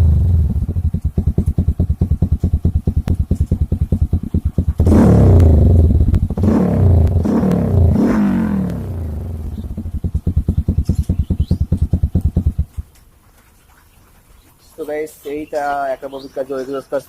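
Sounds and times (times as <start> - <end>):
motorcycle engine idling and revving: 0.0 - 12.9.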